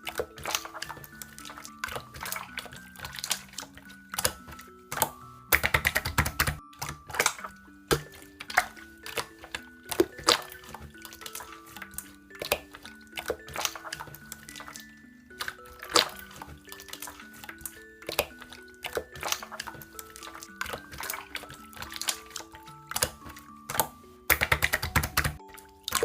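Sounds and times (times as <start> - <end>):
simple background melody: 0.0 - 26.0.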